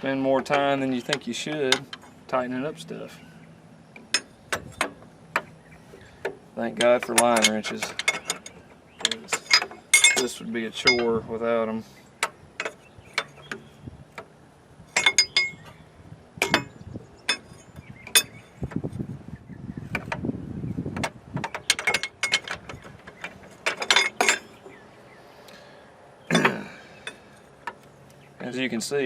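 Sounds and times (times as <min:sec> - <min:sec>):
scraping and rustling: 0:20.8 - 0:24.7.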